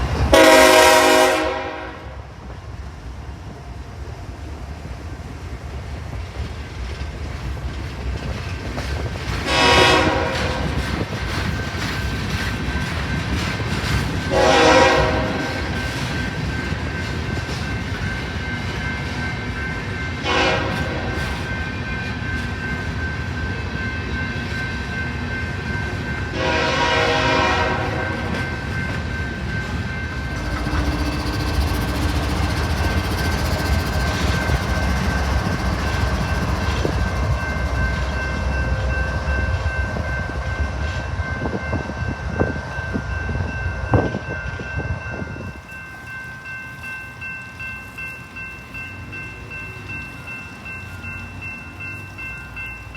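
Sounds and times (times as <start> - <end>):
train rumble: 0.0 - 52.9
train horn: 0.2 - 2.3, 9.4 - 10.9, 14.3 - 16.0, 20.2 - 21.4, 26.3 - 28.5.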